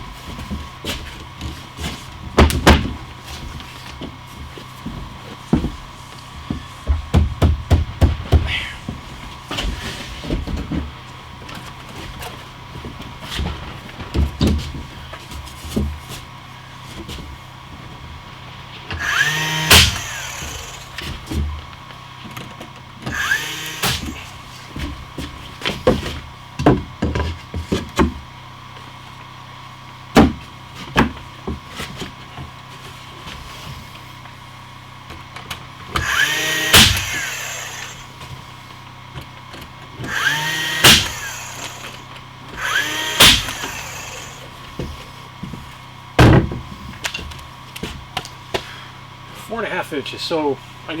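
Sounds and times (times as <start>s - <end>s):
power drill running: 18.9s - 21.3s, 23.0s - 24.7s, 35.8s - 38.5s, 40.0s - 44.8s.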